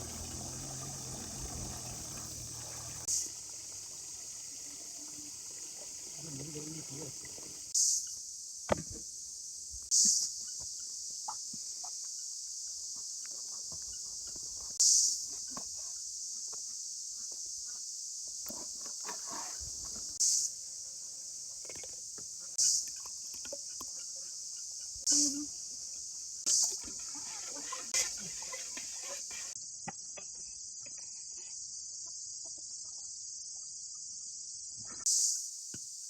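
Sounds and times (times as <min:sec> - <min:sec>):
loud insect buzz bursts: 0:00.0 - 0:08.0, 0:19.6 - 0:20.5, 0:25.0 - 0:29.6
high-pitched insect chorus: 0:00.0 - 0:36.0.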